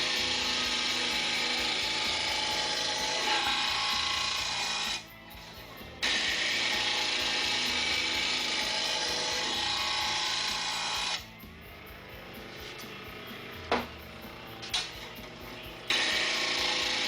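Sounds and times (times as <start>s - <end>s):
grinder grinding steel blade: 0.0s - 11.4s, 12.2s - 17.0s
grinder running: 0.0s - 17.0s.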